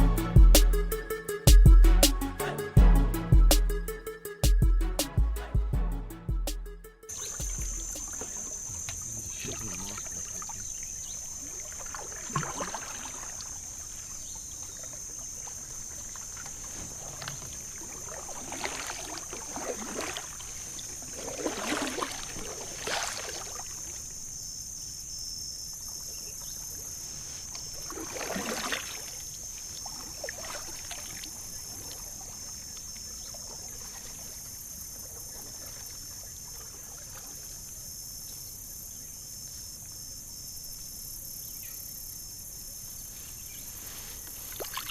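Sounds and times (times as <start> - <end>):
insects buzzing: 0.1 - 2.8, 6.7 - 44.9
water splashing around kayak: 7.1 - 39.0, 42.5 - 44.9.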